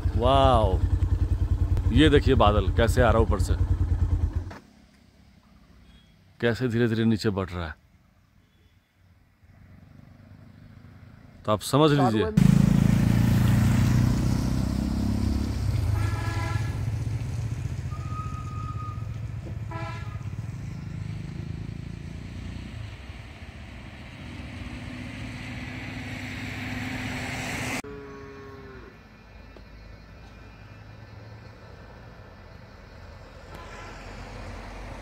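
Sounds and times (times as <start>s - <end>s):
vehicle engine running: 0.0s - 5.6s
horn beeps: 17.9s - 20.2s.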